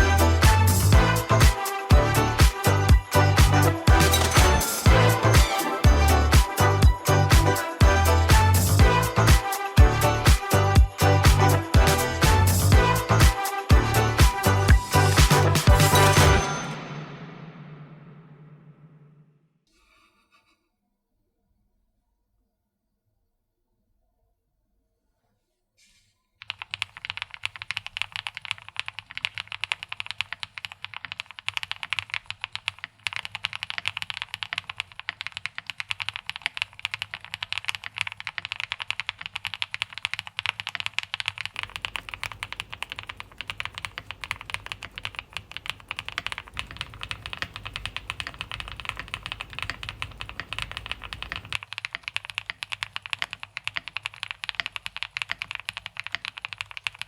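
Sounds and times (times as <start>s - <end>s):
mechanical keyboard typing: 26.4s - 57.0s.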